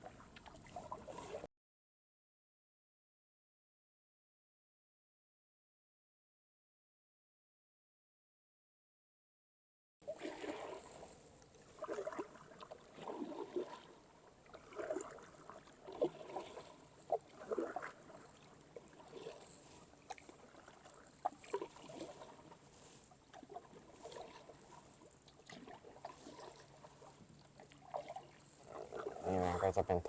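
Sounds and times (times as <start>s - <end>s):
kayak paddle splashing in water: 0.0s - 1.5s, 10.0s - 30.0s.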